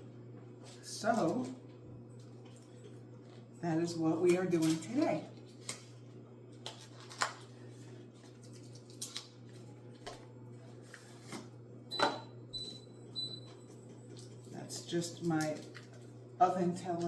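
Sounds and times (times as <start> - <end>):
air fryer short high beeps: 11.9 - 13.5.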